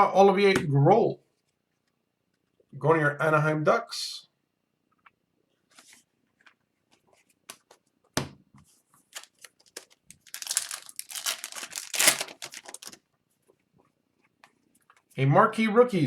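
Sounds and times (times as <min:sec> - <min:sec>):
foil wrapper crinkling and tearing: 0:09.1 - 0:13.0.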